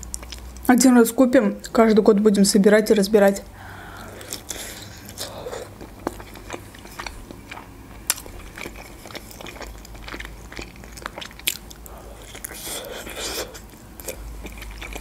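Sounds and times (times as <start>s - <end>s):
chewing dumplings close up: 0.0s - 0.7s, 3.9s - 15.0s.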